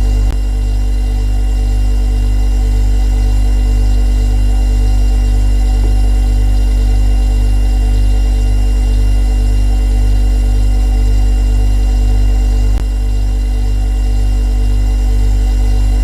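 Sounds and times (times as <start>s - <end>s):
refrigerator compressor hum: 0.0s - 16.0s.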